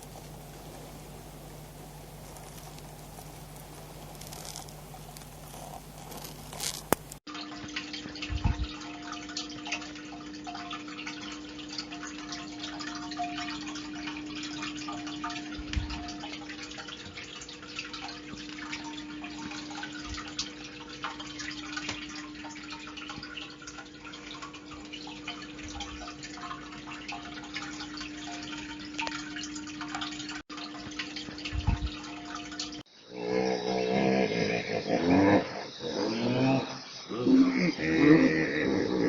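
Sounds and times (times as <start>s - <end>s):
steady low hum: 0.0s - 7.2s
water dripping and trickling: 0.0s - 33.0s.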